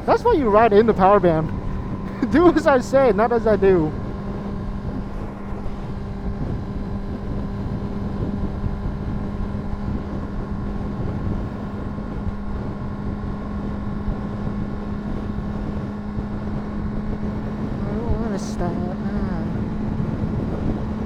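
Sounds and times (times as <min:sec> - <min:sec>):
motorcycle engine cruising: 0:00.0 - 0:21.0
wind noise on microphone: 0:00.0 - 0:21.0.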